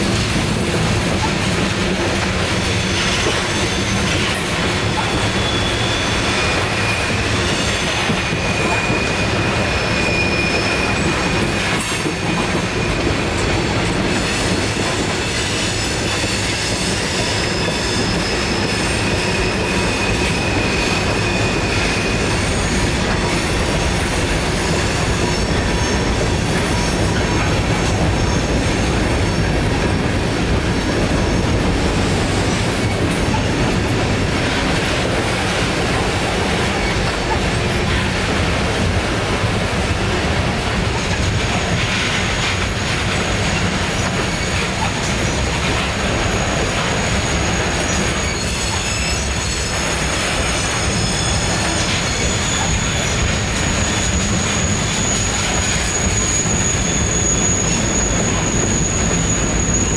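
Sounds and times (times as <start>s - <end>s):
steel wheels rumbling on rail: 0.0s - 59.9s
high-pitched wheel squeal: 2.5s - 13.2s, 14.0s - 29.6s, 44.0s - 59.9s.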